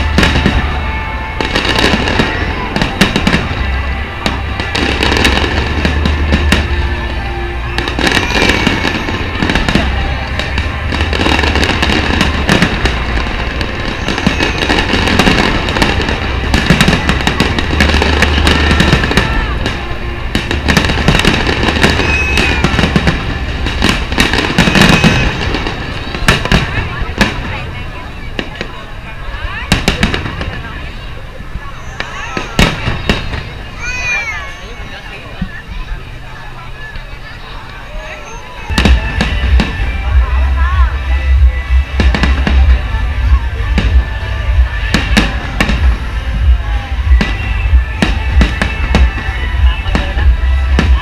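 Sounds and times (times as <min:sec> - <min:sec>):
music playing: 0:00.0 - 0:29.6, 0:38.7 - 0:51.0
fireworks banging: 0:00.0 - 0:36.3, 0:36.9 - 0:51.0.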